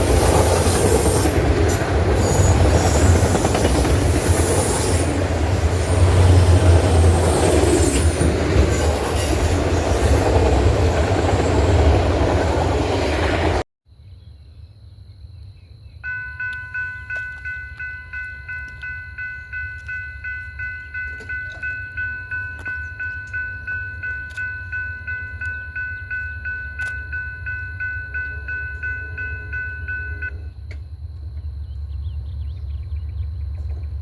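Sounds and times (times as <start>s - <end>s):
railroad warning bell ringing: 16.0s - 30.6s.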